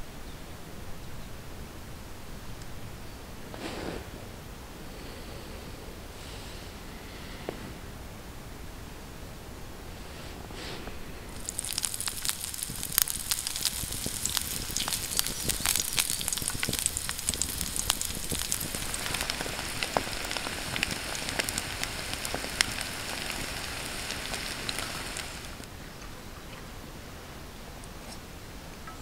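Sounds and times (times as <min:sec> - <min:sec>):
chicken sizzling with pops: 0:10.6 - 0:25.7.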